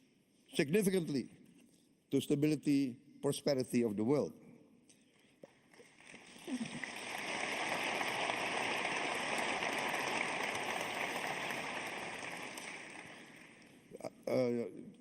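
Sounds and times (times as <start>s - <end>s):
audience applauding: 5.8s - 13.9s.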